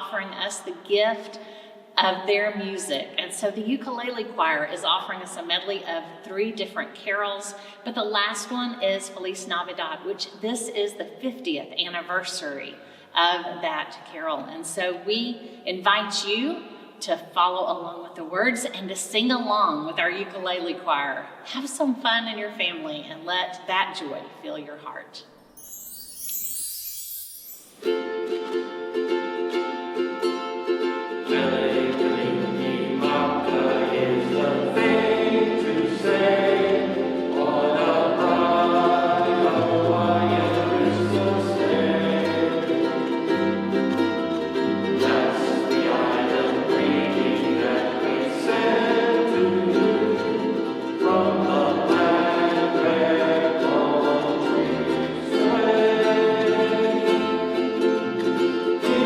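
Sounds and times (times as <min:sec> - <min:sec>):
ukulele ensemble strumming: 0:25.7 - 0:59.0
voices singing along: 0:31.3 - 0:43.1, 0:44.9 - 0:57.6, 0:58.8 - 0:59.0.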